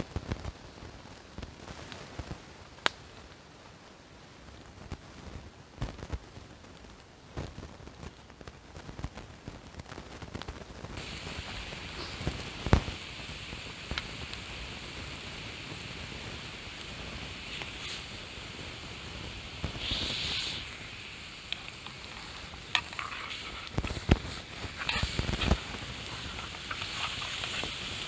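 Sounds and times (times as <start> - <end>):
burning wood popping: 0.0 - 3.5, 4.5 - 28.0
food sizzling in a pan: 11.0 - 28.0.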